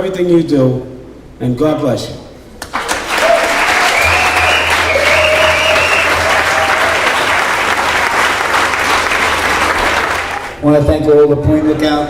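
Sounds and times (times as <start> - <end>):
crowd applauding: 2.6 - 10.6.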